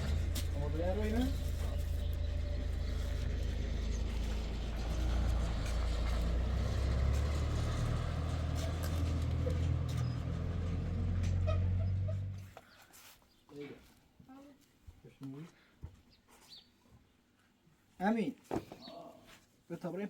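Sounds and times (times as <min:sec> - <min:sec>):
vehicle engine and road rumble: 0:00.0 - 0:12.6.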